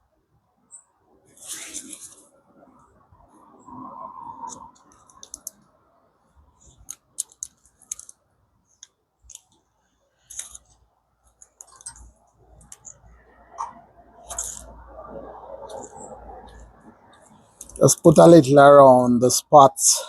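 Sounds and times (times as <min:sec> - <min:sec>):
hands clicking and scraping on pipe: 0:04.5 - 0:05.6, 0:06.8 - 0:08.2, 0:17.2 - 0:17.8.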